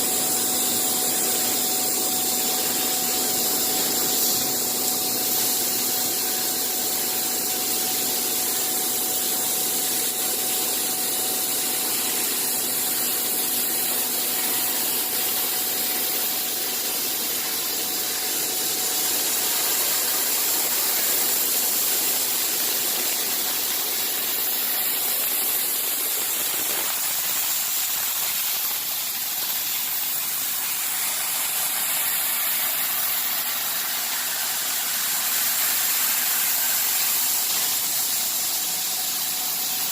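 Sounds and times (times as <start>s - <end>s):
machine hiss: 0.0s - 39.9s.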